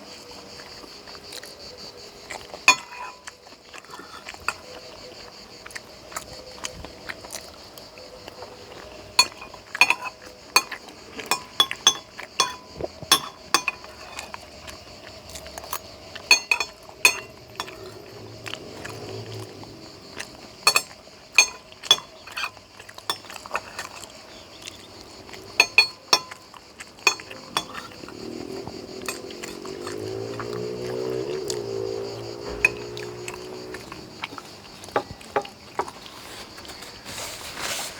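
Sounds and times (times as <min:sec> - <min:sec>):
cutlery clinking on a plate: 0:02.6 - 0:03.3, 0:09.2 - 0:14.4, 0:15.6 - 0:18.2, 0:20.6 - 0:24.0, 0:25.6 - 0:28.0, 0:31.1 - 0:33.5.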